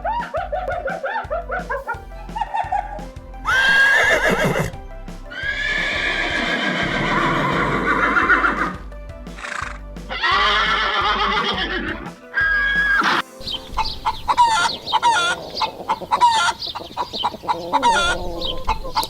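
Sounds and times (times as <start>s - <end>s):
background music with low beat: 0.0s - 19.0s
horse neighing: 5.9s - 8.8s.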